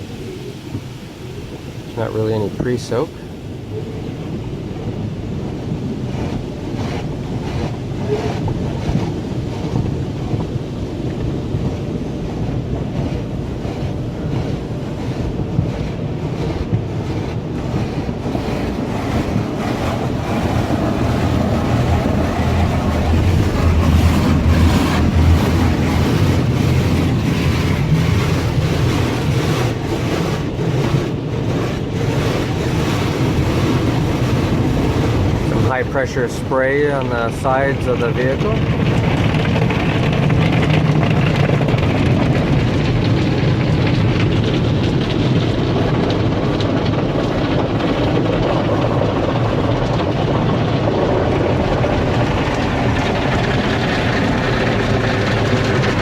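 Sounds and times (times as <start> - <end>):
cloth washers rumbling: 0.0 - 56.0
spraying water: 5.2 - 43.8.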